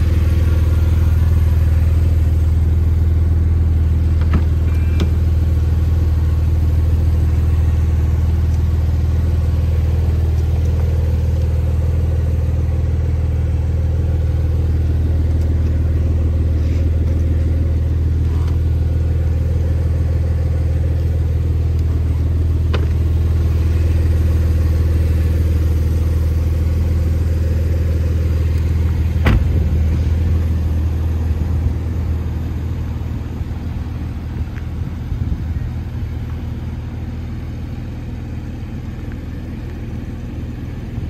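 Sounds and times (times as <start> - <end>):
car engine idling: 0.0 - 41.0
car door shutting: 4.0 - 5.4, 22.6 - 23.1, 28.3 - 30.3.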